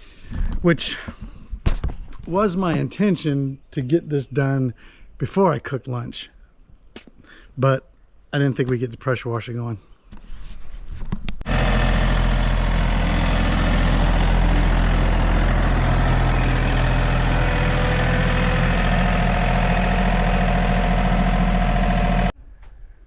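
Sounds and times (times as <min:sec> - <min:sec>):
pressure washer engine running: 0:11.5 - 0:22.3.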